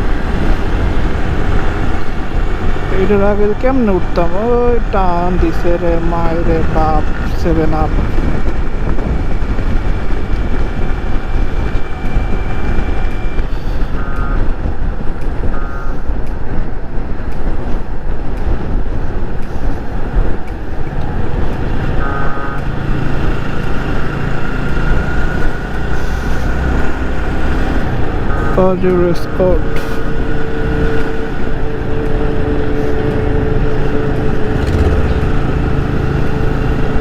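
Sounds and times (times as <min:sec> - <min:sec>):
wind rush on microphone: 0:00.0 - 0:37.0
short horn beeps: 0:13.1 - 0:14.5, 0:15.5 - 0:16.1
motorcycle engine running: 0:29.9 - 0:37.0.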